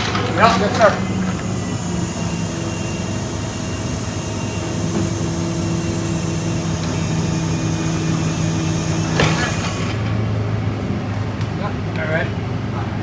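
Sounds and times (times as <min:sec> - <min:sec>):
hydraulic mechanical hum: 0:00.0 - 0:13.0
tow truck engine running: 0:00.0 - 0:13.0.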